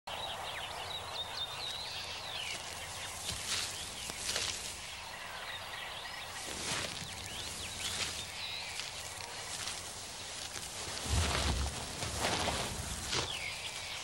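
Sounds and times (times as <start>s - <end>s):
birds chirping: 0.1s - 14.0s
outdoor background hiss: 0.1s - 14.0s.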